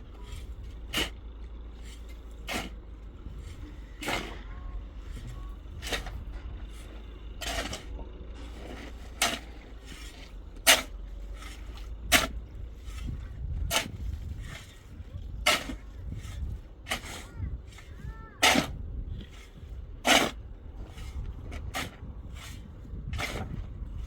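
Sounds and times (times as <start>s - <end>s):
low steady rumble: 0.0s - 24.0s
hand tool scraping strokes: 1.8s - 2.8s, 8.6s - 23.6s.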